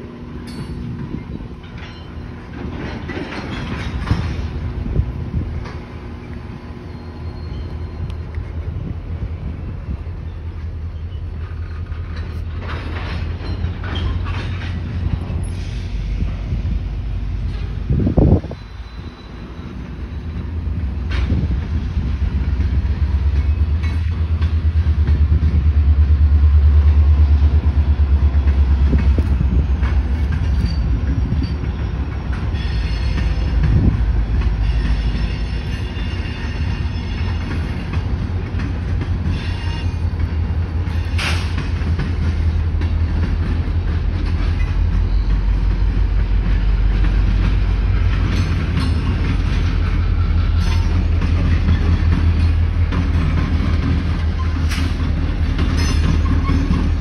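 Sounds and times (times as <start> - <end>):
diesel locomotive rumble: 0.0 - 57.0
train wheels clattering on rails: 0.0 - 57.0
high wheel squeal: 6.1 - 8.9, 10.1 - 16.3, 17.4 - 21.4, 29.4 - 38.0, 39.2 - 41.6, 44.5 - 46.1, 49.8 - 52.8.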